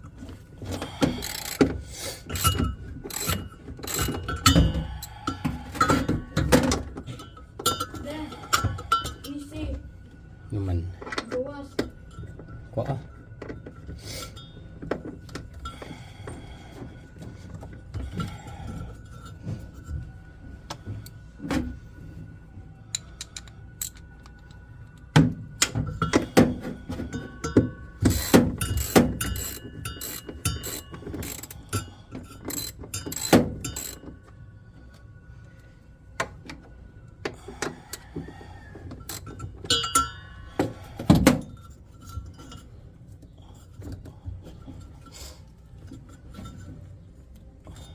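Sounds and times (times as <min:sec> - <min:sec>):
tools and metal parts clinking: 0:00.6 - 0:09.8, 0:22.9 - 0:34.4, 0:38.9 - 0:47.9.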